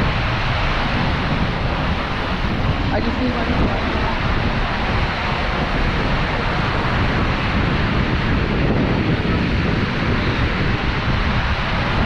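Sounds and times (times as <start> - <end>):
waterfall rushing: 0.0 - 7.6
wind buffeting microphone: 0.0 - 12.0.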